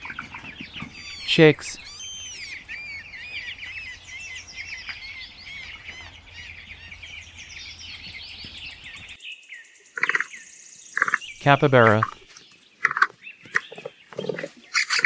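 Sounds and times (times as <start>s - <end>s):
chicks peeping: 0.0s - 9.2s.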